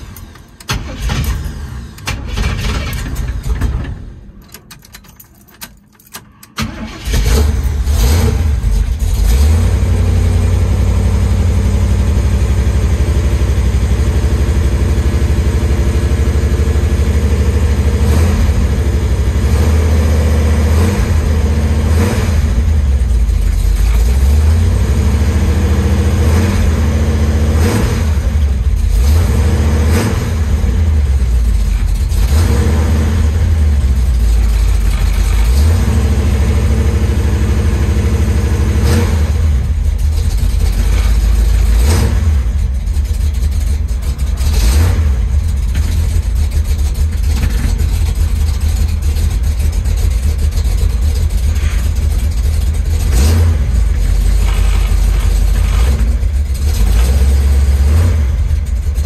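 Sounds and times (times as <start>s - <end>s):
car engine running unevenly: 0.0s - 16.8s, 39.4s - 59.0s
engine revs: 6.6s - 59.0s.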